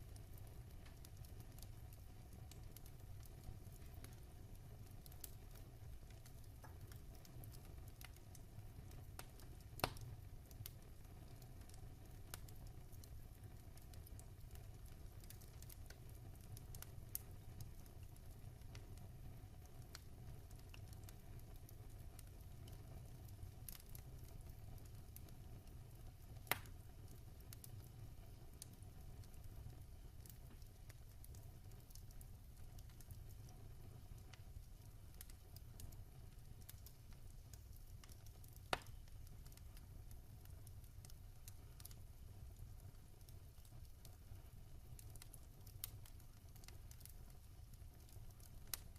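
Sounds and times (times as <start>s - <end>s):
wood fire crackling: 0.0s - 48.9s
sharp fire pops: 26.4s - 26.8s, 38.0s - 39.1s.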